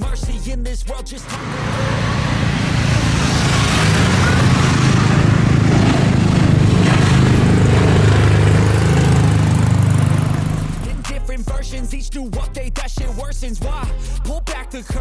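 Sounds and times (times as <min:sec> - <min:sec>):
engine rumbling with hiss: 0:01.2 - 0:11.3.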